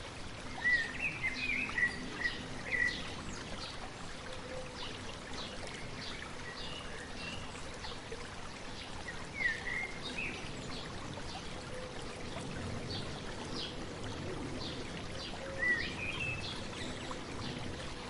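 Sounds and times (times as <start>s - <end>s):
stream babbling: 0.0s - 18.0s.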